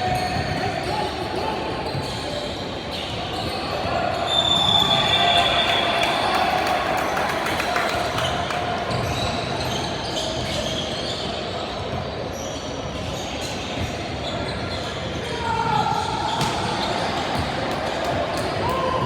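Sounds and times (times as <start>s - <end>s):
shoe squeaks: 0.0s - 5.4s, 8.9s - 16.8s.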